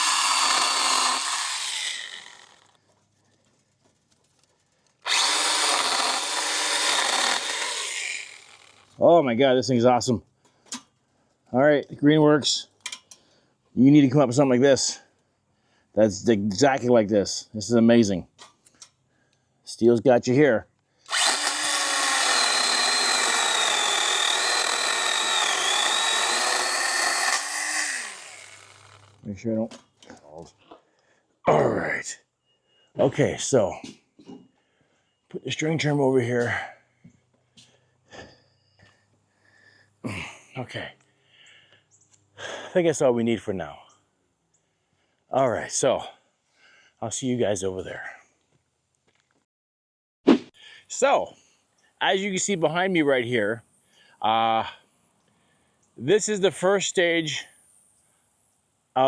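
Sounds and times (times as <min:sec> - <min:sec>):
pruning chainsaw cutting branches: 0:00.0 - 0:02.7, 0:05.0 - 0:09.0, 0:21.1 - 0:29.2.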